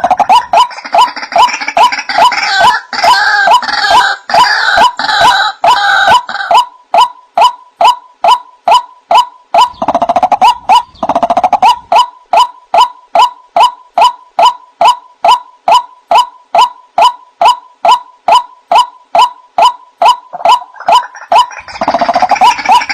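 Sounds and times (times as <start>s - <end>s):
waterhen calling: 0.0s - 22.9s
bird gurgling rattles: 9.6s - 11.9s.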